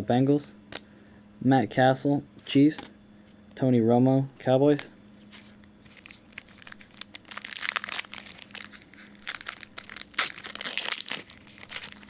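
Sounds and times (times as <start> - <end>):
plastic wrapper crinkling: 5.2 - 12.0.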